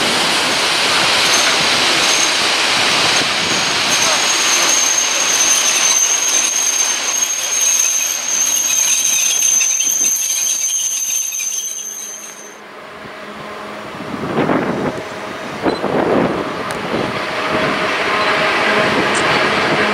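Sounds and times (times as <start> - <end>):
freight wagons rumbling and rattling: 0.0 - 12.6
high-pitched wheel squeal: 4.0 - 12.6.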